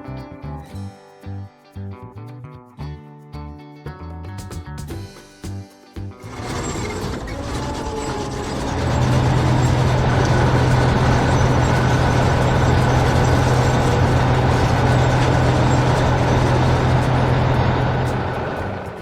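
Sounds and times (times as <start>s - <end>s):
heavy vehicle engine humming: 6.3s - 19.0s.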